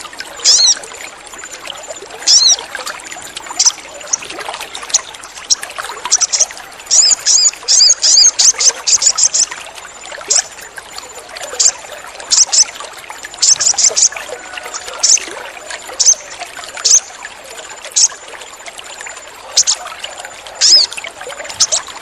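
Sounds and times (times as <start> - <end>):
trickle of running water: 0.0 - 22.0
bird high chirps: 0.4 - 0.8, 2.3 - 2.6, 4.9 - 9.5, 16.0 - 17.2, 20.6 - 20.9.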